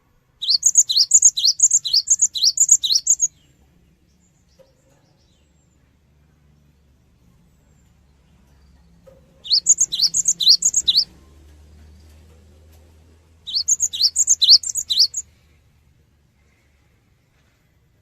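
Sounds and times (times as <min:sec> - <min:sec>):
bird whistling song: 0:00.4 - 0:03.4, 0:09.4 - 0:11.2, 0:13.5 - 0:15.3.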